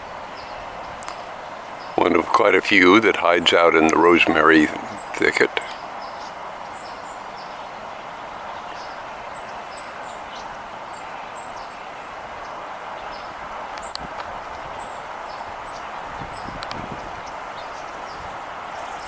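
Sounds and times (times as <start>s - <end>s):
outdoor ambience hiss: 0.0s - 19.0s.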